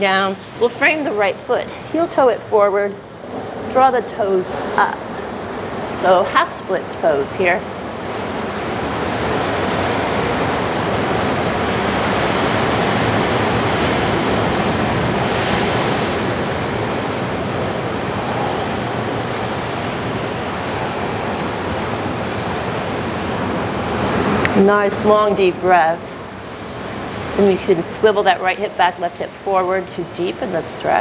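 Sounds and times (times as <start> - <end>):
ocean waves washing on shore: 0.0 - 31.0.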